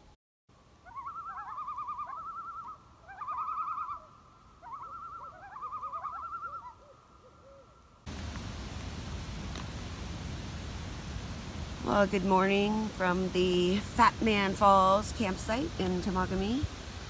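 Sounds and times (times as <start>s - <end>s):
bird warbling call: 0.8s - 7.8s.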